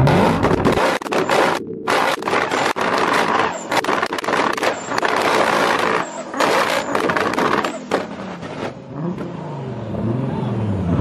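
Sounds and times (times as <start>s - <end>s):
exhaust cracks and pops: 0.0s - 8.8s
cars revving hard: 0.0s - 11.0s.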